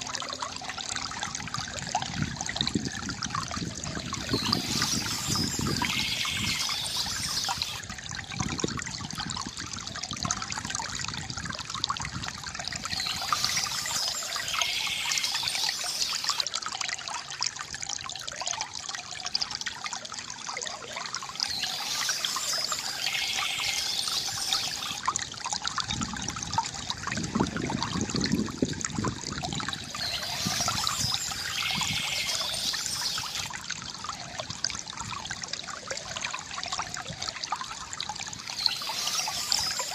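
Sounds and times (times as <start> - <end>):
stream burbling over rocks: 0.0 - 39.9
birds singing: 4.2 - 7.8, 12.8 - 16.4, 21.2 - 25.0, 29.8 - 33.5, 38.4 - 39.9.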